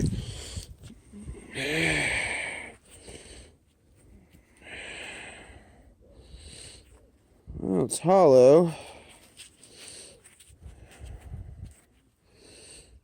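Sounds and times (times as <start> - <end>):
man sighing: 1.1 - 2.8.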